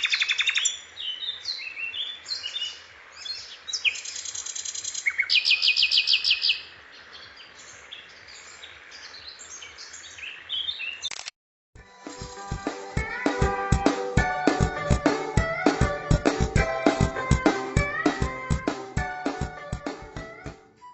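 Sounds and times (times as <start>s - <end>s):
music with guitar and drums: 11.8s - 20.7s.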